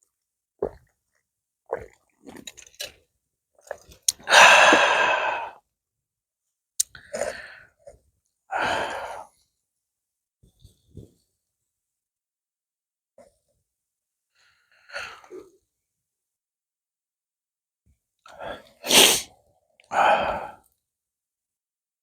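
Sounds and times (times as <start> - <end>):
person swallowing: 4.1 - 5.5
breathy sigh: 4.3 - 5.6, 19.9 - 20.6
person exhaling: 4.3 - 5.6, 19.9 - 20.6.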